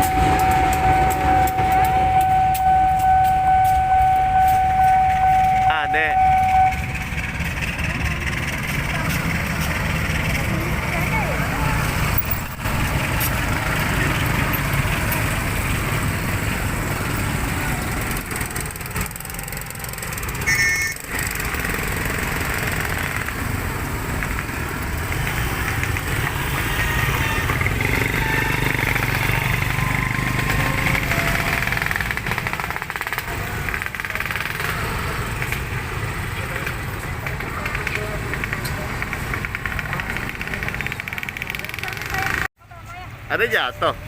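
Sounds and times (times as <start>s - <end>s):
brief high tone: 0.0s - 7.4s
freight train rumbling: 0.0s - 42.5s.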